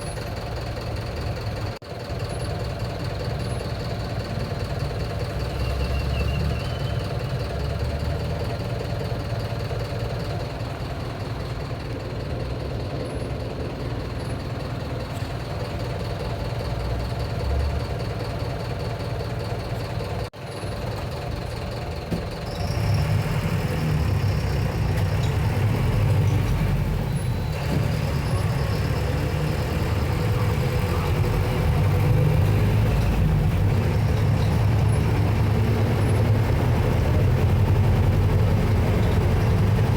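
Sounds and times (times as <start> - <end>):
diesel bus engine running: 0.0 - 39.9.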